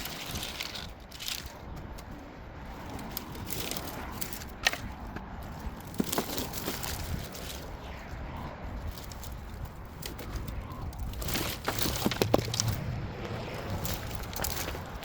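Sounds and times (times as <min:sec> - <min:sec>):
dry branches crackling and rustling: 0:00.0 - 0:15.0.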